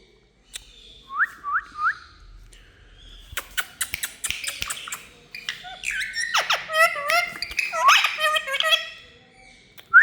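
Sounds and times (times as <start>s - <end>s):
parakeets chirping: 2.9s - 9.2s.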